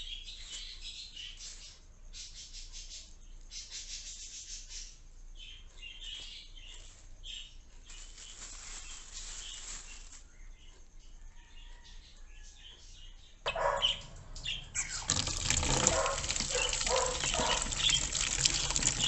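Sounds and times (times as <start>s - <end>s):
budgerigars chirping and chattering: 13.5s - 18.1s.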